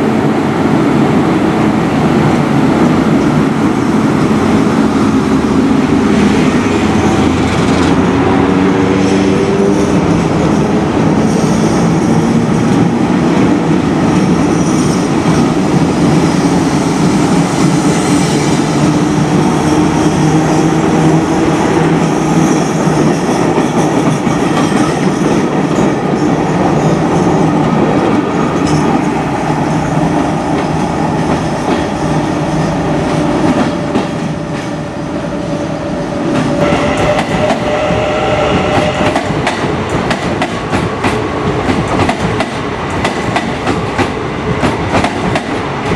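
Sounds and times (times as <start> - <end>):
train wheels clattering: 36.3 - 45.9.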